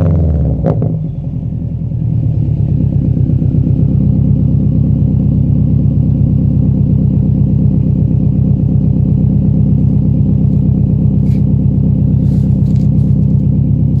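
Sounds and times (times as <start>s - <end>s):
car engine idling: 1.0s - 14.0s.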